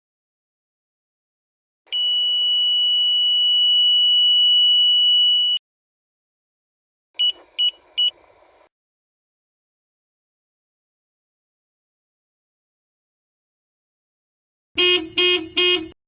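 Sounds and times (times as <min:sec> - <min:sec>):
car alarm beeping: 0:01.9 - 0:05.6, 0:07.2 - 0:08.2.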